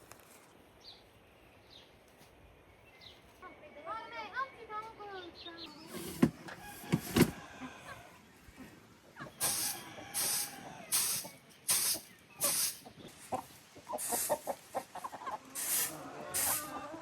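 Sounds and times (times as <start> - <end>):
chickens clucking: 5.7 - 17.0.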